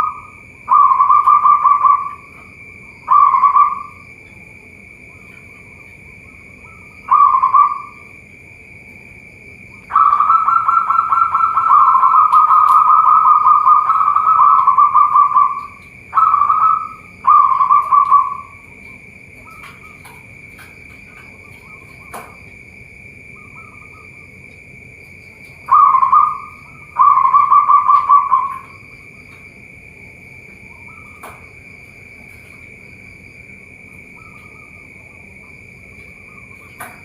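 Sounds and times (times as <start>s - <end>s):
dove cooing: 0.0s - 4.4s, 5.1s - 8.2s, 9.8s - 22.4s, 25.2s - 29.4s, 30.5s - 31.5s
high-pitched whine: 0.0s - 37.0s.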